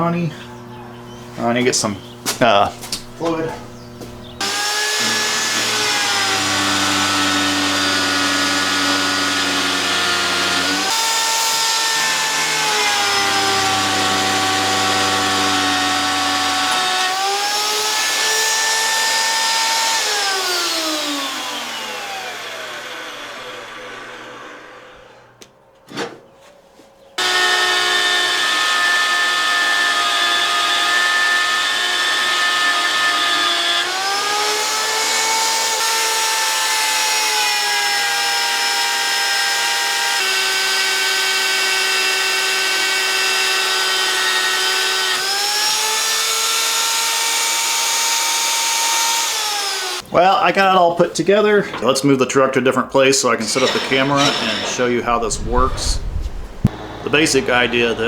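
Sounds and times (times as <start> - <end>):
magnetic drill motor whining: 3.0 - 25.1, 27.2 - 50.0.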